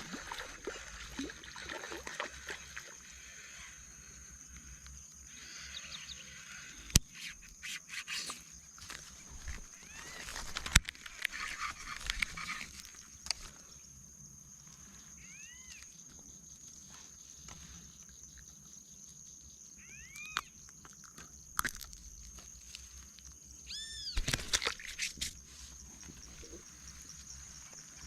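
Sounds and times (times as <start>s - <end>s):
animal calls rising and falling: 23.7s - 24.2s.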